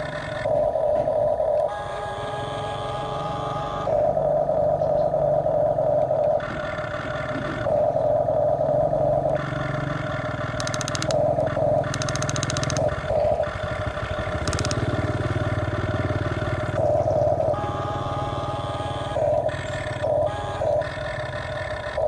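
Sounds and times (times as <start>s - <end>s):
high motor whine: 0.0s - 22.0s
toy excavator motor drone: 0.0s - 22.0s
rapid gear clicking: 9.2s - 17.7s.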